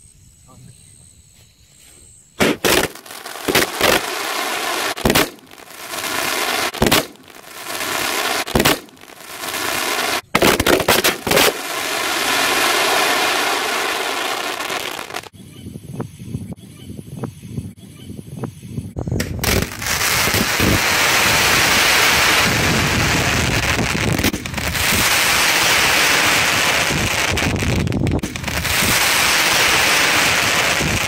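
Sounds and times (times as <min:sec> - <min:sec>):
firework bangs: 0:02.4 - 0:15.3, 0:19.1 - 0:31.0
firework crackling: 0:02.4 - 0:15.3, 0:19.1 - 0:31.0.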